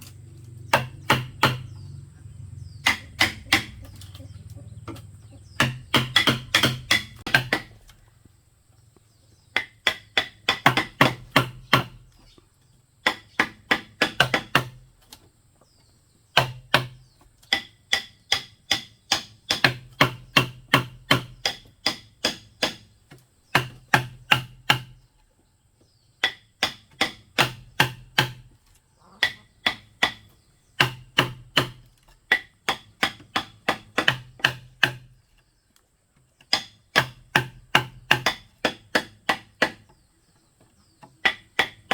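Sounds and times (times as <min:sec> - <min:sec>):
blows striking bamboo: 0:00.0 - 0:08.0, 0:09.5 - 0:12.2, 0:26.2 - 0:28.6, 0:29.2 - 0:35.3, 0:36.4 - 0:40.1, 0:40.9 - 0:41.9.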